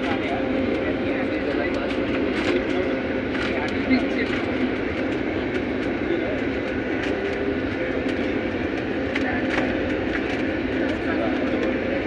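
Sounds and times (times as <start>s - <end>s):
airliner rumble: 0.0s - 12.0s
constant hum: 0.0s - 12.0s.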